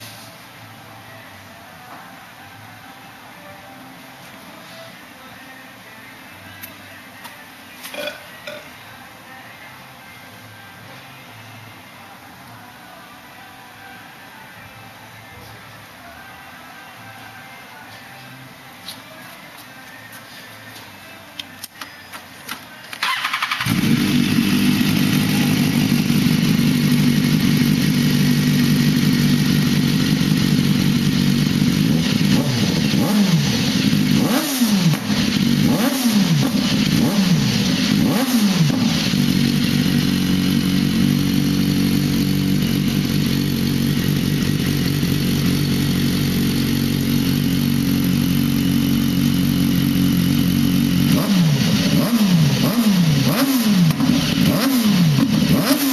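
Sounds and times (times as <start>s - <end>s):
motorcycle engine idling and revving: 23.0s - 55.9s.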